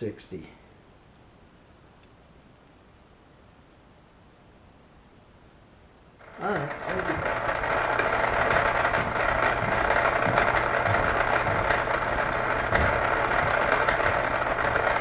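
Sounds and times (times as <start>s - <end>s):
electric motor humming and hissing: 6.2s - 15.0s.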